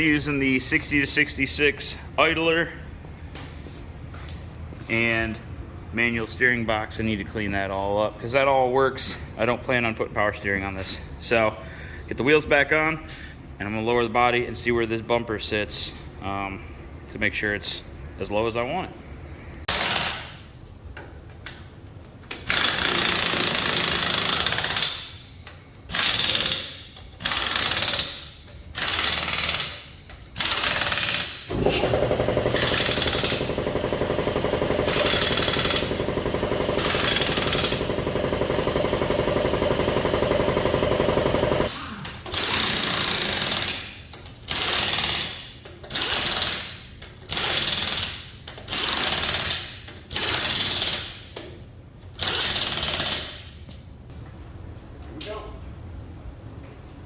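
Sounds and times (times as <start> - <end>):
impact wrench hammering: 22.4 - 25.2, 25.9 - 51.3, 52.2 - 53.5.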